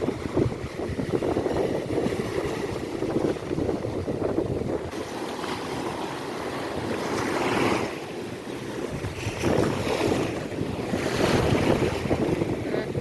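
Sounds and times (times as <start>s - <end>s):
ocean waves on a beach: 0.0s - 13.0s
wind buffeting microphone: 0.0s - 13.0s.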